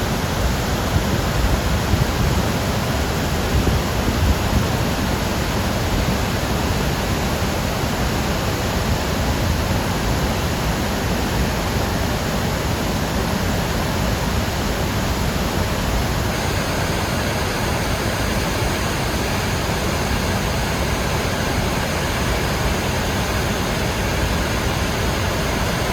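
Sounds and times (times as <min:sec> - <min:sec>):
floodwater rushing from spillway: 0:09.8 - 0:25.9.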